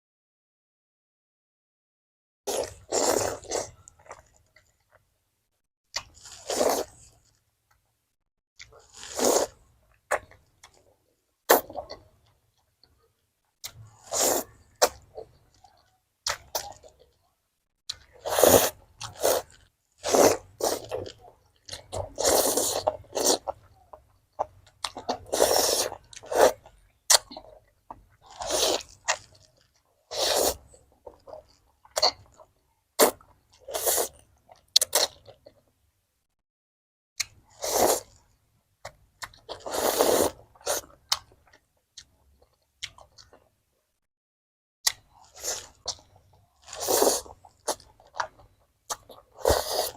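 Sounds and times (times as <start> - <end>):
person chewing and slurping food: 2.5 - 5.0, 6.0 - 7.4, 8.6 - 10.9, 13.6 - 17.1, 17.9 - 35.6, 37.2 - 43.5, 44.9 - 49.9.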